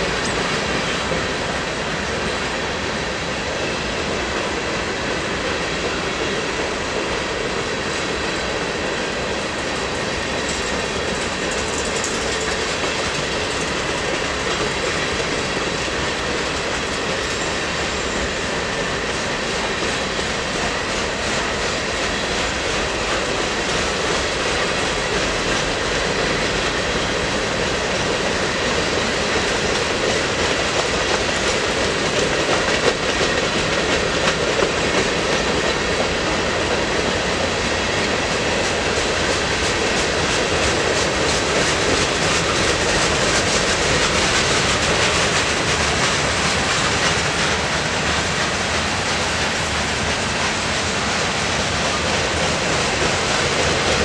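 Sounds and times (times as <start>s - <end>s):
train cars rolling on rails: 0.0s - 54.0s.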